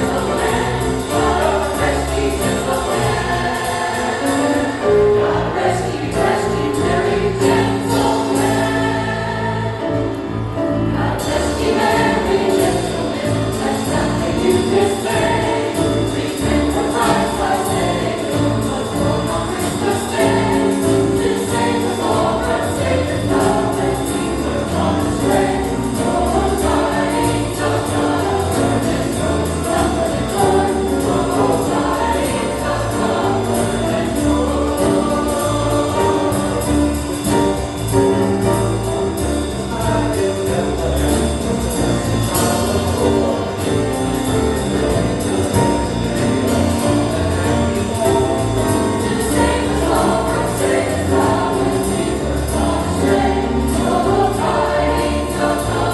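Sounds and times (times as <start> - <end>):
choir singing: 0.0 - 55.9
instrumental accompaniment: 0.0 - 55.9.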